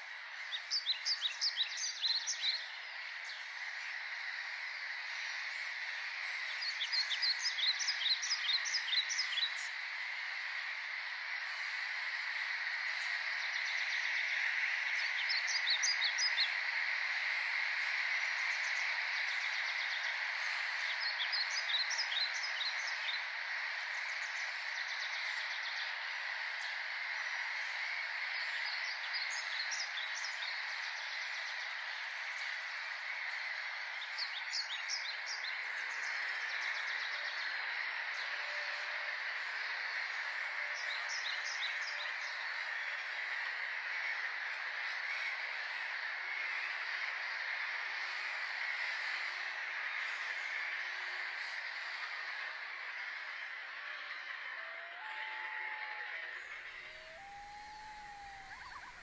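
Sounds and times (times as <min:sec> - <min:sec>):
chorus of calling birds: 0:00.0 - 0:59.0
songbird singing high notes: 0:56.4 - 0:59.0.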